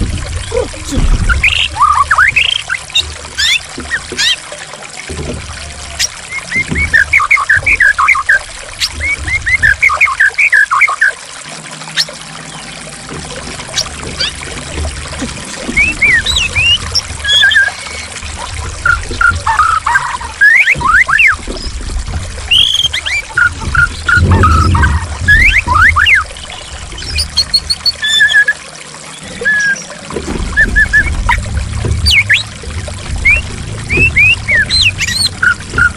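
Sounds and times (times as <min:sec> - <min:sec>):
water trickling and gurgling: 0:00.0 - 0:35.9
bird whistling: 0:15.7 - 0:18.1, 0:18.8 - 0:21.4, 0:22.5 - 0:26.3, 0:27.0 - 0:28.6, 0:29.3 - 0:29.9, 0:30.6 - 0:31.4, 0:32.0 - 0:32.5, 0:33.2 - 0:35.9
bird chirping: 0:33.2 - 0:35.9.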